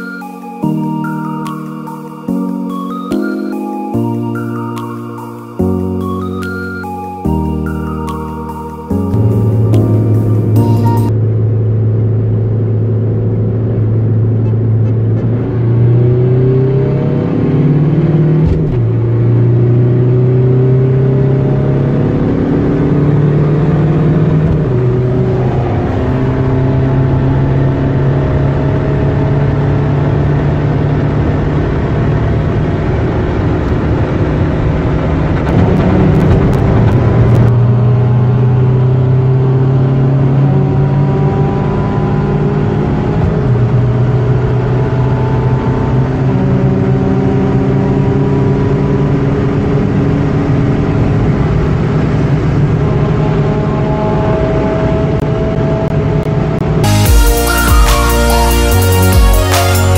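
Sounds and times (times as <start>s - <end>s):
diesel engine accelerating: 0.0s - 59.9s.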